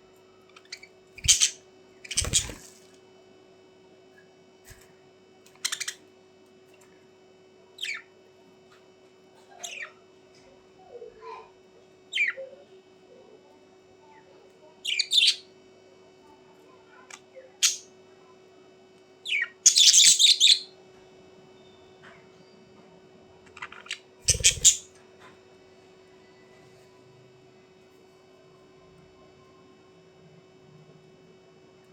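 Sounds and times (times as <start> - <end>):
faint steady hum: 0.0 - 31.9
birds chirping and squawking: 0.5 - 2.9, 5.5 - 6.0, 7.8 - 8.1, 9.6 - 10.0, 12.1 - 12.5, 14.8 - 15.4, 19.2 - 20.7, 23.5 - 25.0.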